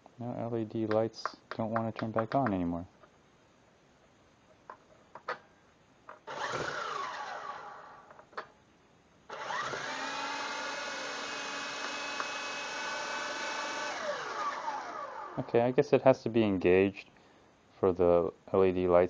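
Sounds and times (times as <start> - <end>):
toy helicopter motors whining: 6.3 - 8.0, 9.3 - 15.5.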